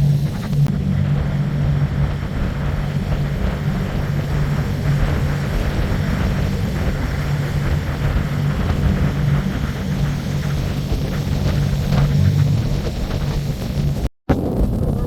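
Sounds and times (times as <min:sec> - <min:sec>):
boat engine humming: 0:00.0 - 0:14.1
wind and water rushing: 0:00.0 - 0:14.1.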